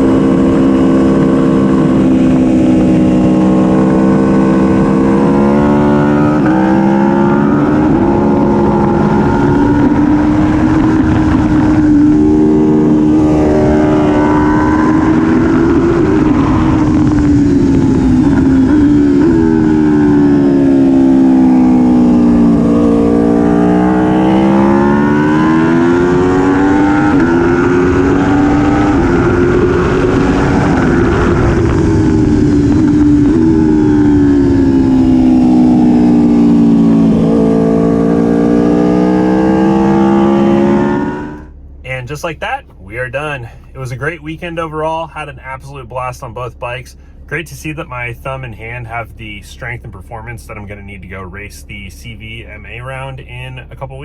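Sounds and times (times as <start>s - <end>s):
wind rush: 0.0s - 38.3s
motorcycle engine revving: 0.0s - 41.6s.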